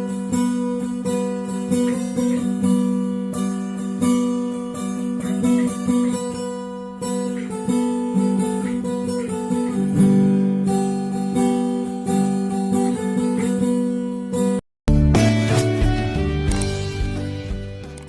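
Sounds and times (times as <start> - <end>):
acoustic guitar music: 0.0 - 18.0.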